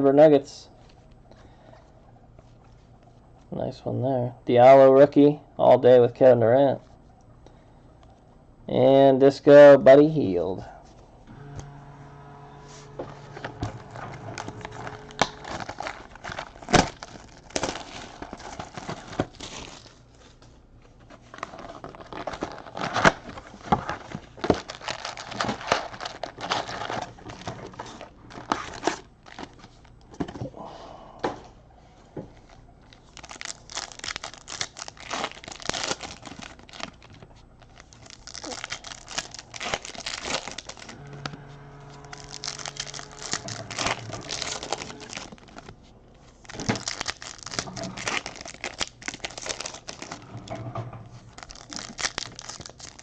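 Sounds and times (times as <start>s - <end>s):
foil wrappers crinkling: 12.8s - 30.4s, 32.3s - 50.2s, 51.2s - 53.0s.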